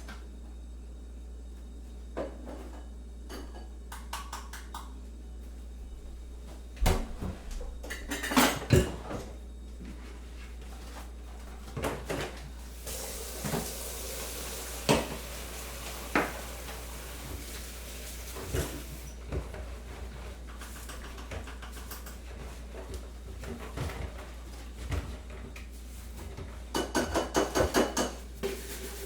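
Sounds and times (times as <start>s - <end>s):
low constant hum: 0.0s - 14.9s
steady hiss: 12.8s - 19.1s.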